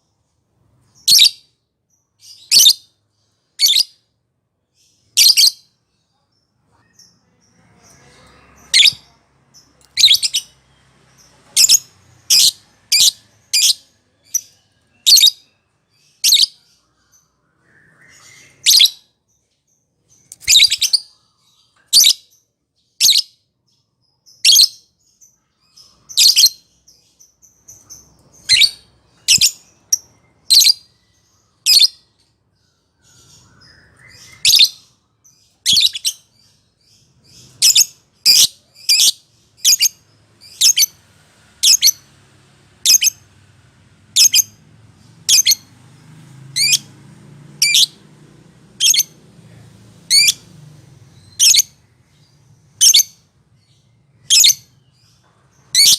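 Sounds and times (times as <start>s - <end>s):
bird high-pitched calls: 3.6s - 4.0s, 7.8s - 10.6s, 11.2s - 19.1s, 20.3s - 22.2s, 27.6s - 41.0s, 41.6s - 42.1s, 44.2s - 44.6s, 45.3s - 45.7s, 47.6s - 48.0s, 48.8s - 49.2s, 50.1s - 50.5s, 51.1s - 55.9s.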